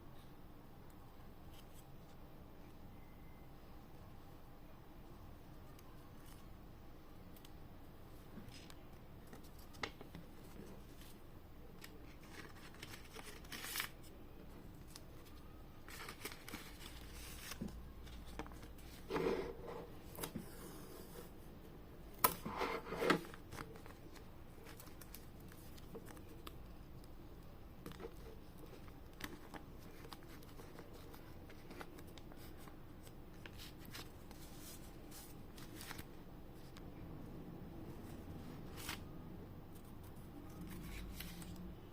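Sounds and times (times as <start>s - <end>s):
packaging clicks and rustles: 14.8s - 19.1s.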